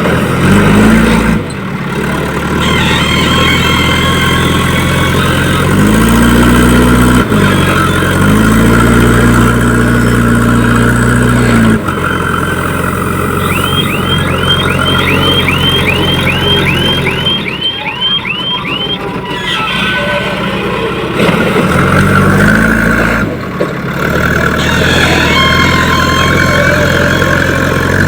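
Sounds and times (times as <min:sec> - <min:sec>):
heavy diesel engine revving: 0:00.0 - 0:28.0
reversing alarm chirping: 0:02.6 - 0:09.1, 0:11.9 - 0:21.2, 0:24.6 - 0:28.0.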